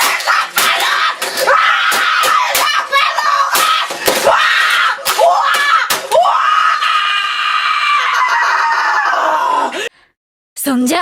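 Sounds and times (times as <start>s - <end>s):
sharp knocks: 0.0s - 6.3s
boy screaming: 0.0s - 9.8s.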